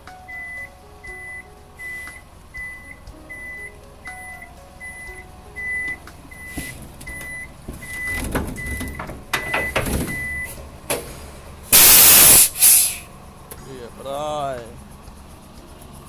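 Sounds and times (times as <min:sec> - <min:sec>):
heavy machinery rumbling and clanking: 0:00.0 - 0:11.8
backup alarm beeping: 0:00.3 - 0:10.6
loud air hiss: 0:10.5 - 0:13.2.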